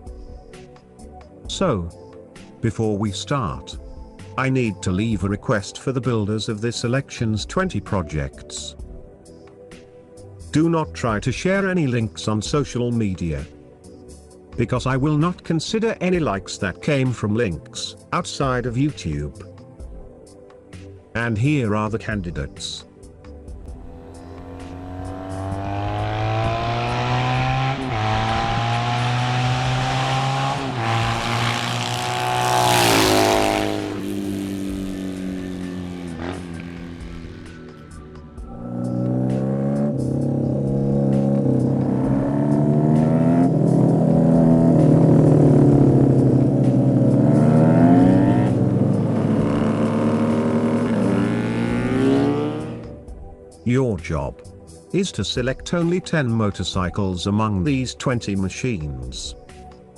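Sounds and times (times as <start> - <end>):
motorcycle engine accelerating: 23.7 - 53.0.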